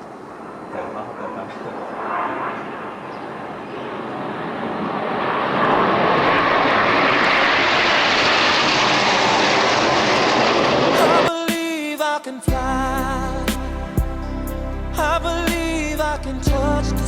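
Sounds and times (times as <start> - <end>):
rushing engine-like noise: 4.2 - 11.3.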